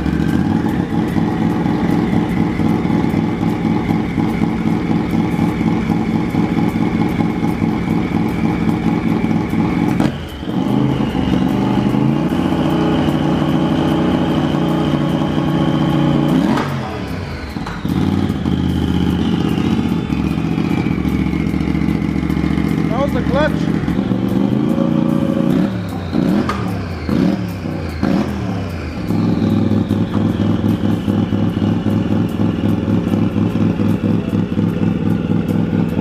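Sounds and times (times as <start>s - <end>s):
engine idling: 0.0s - 36.0s
high turbo whine: 0.0s - 36.0s.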